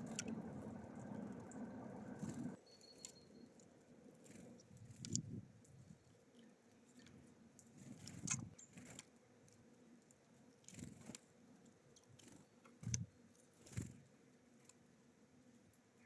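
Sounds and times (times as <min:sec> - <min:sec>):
birds pecking at feeder: 0:00.0 - 0:03.2.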